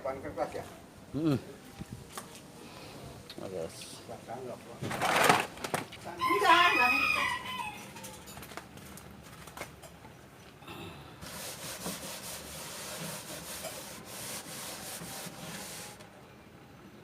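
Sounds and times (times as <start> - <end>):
scrubbing on a surface: 11.2 - 16.0.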